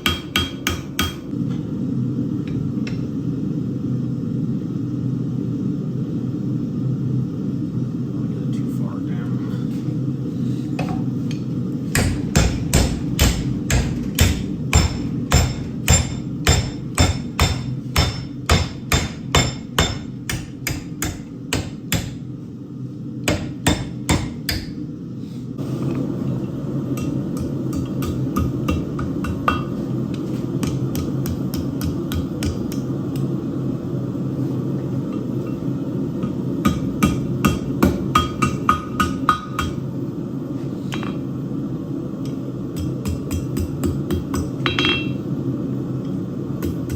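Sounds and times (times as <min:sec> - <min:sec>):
steady hum: 0:00.0 - 0:46.9
hammer blows on anvil: 0:11.9 - 0:22.2, 0:42.8 - 0:45.3.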